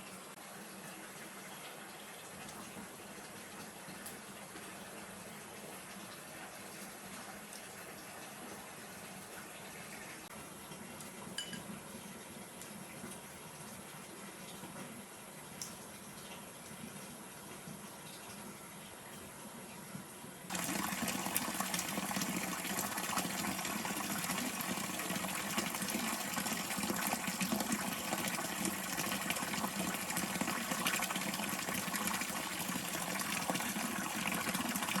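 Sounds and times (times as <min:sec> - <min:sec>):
rushing water: 0:20.5 - 0:35.0.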